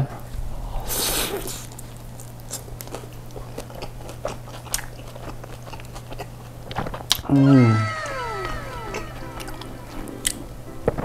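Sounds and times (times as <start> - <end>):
faint steady hum: 0.0 - 11.0
close-miked chewing: 0.8 - 7.2
biting into a wrap: 0.9 - 7.3.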